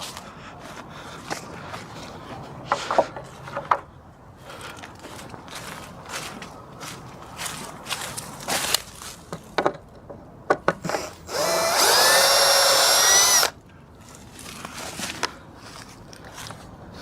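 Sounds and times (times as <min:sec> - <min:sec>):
handling knocks and clicks: 0:02.7 - 0:03.9, 0:08.7 - 0:11.0
power drill driving screw into wood: 0:10.9 - 0:13.6.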